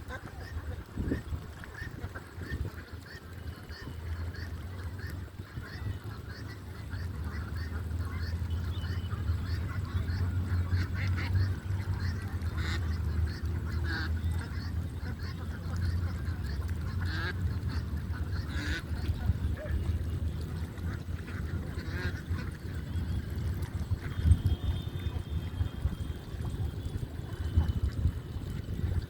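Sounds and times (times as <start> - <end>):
steady low rumble: 3.6 - 29.0.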